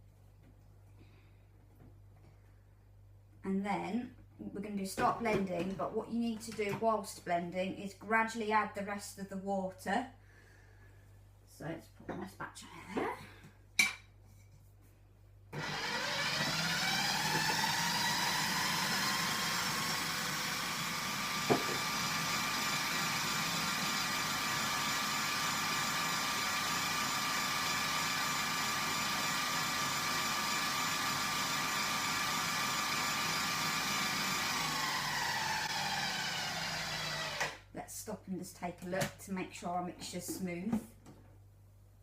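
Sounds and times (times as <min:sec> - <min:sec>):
food processor motor whine: 0:15.6 - 0:37.6.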